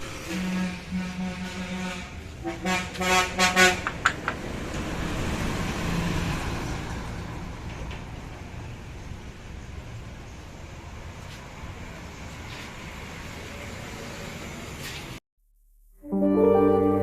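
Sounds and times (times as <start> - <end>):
vehicle horn honking: 0.3 - 3.9
vehicle passing: 3.2 - 10.2.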